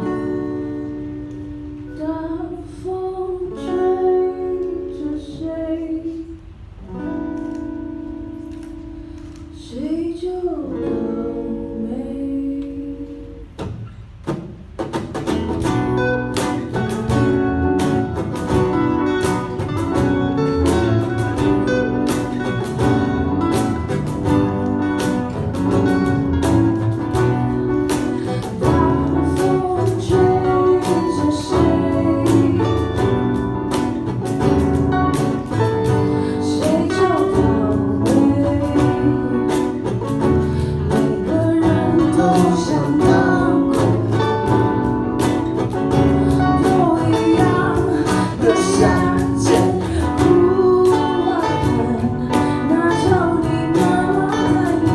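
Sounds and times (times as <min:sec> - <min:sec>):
guitar-led band music: 0:00.0 - 0:01.9, 0:13.4 - 0:54.9.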